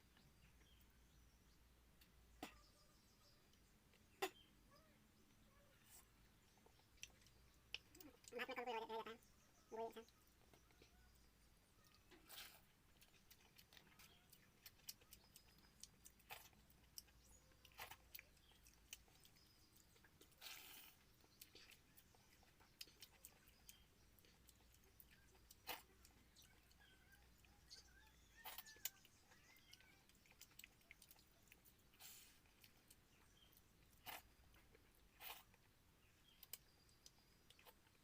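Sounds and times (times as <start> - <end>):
person chewing and lip-smacking: 6.5 - 8.5, 11.8 - 38.0.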